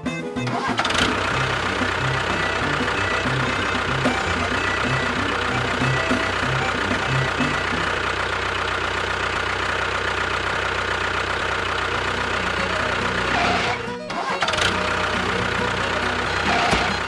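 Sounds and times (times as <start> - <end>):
background music: 0.0 - 8.0
engine-like running sound: 0.0 - 17.0.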